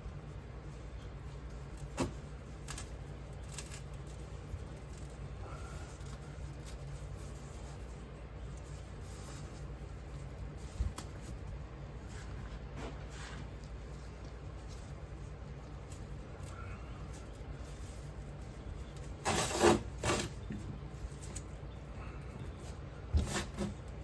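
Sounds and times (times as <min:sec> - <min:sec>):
steady low hum: 0:00.0 - 0:24.0
light scrapes and knocks: 0:08.5 - 0:21.5.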